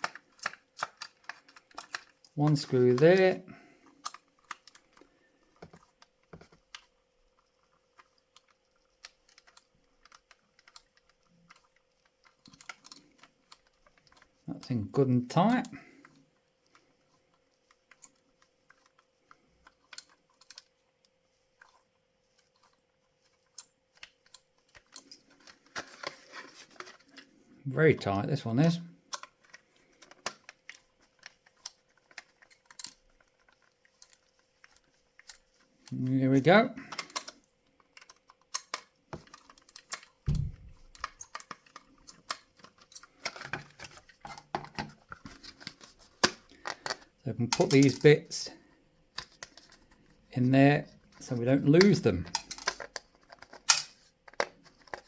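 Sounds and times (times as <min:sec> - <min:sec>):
small metal parts clicking: 0:00.0 - 0:03.1, 0:17.9 - 0:18.9, 0:29.1 - 0:37.4, 0:38.0 - 0:40.2, 0:40.8 - 0:43.6, 0:52.2 - 0:55.0
screwdriver clicks and scrapes: 0:00.0 - 0:03.3, 0:38.0 - 0:40.2, 0:40.8 - 0:47.0.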